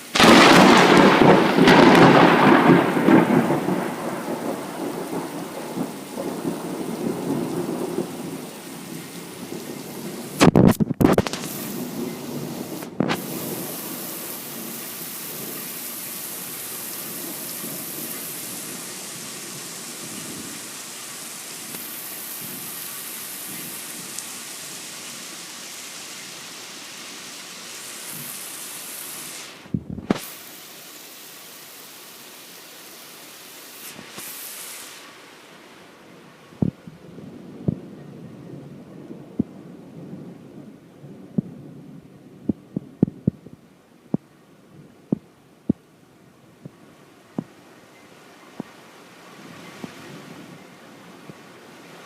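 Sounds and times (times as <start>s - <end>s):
heavy rain: 0.0s - 52.0s
low thunder rumble: 0.2s - 15.7s, 36.5s - 45.9s.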